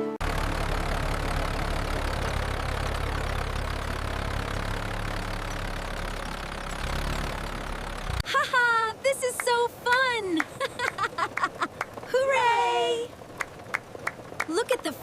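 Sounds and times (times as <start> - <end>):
tractor engine rattling: 0.2 - 15.0.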